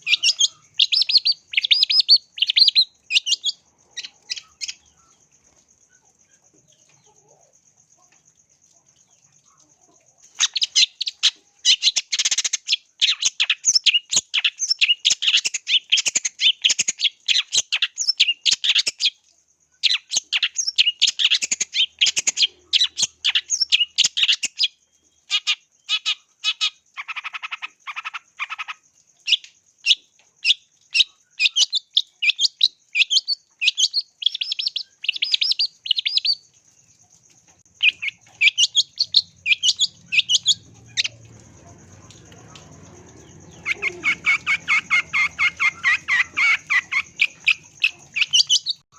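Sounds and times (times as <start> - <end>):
bird singing chattering notes: 0.0 - 5.2, 29.4 - 36.5, 37.6 - 48.9.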